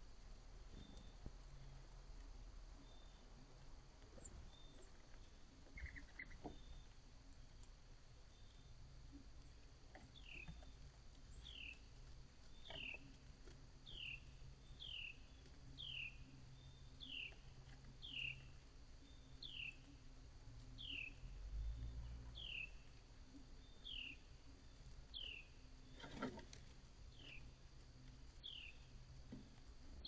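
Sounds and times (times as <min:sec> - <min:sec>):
small animal chirping: 0:05.7 - 0:06.8.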